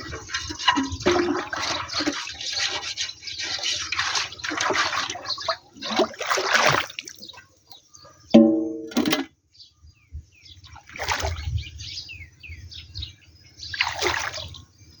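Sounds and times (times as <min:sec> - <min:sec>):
water splashing: 0:00.0 - 0:07.4, 0:10.8 - 0:11.5, 0:13.7 - 0:14.6
small birds chirping: 0:01.6 - 0:06.0, 0:07.0 - 0:08.8, 0:09.5 - 0:15.0.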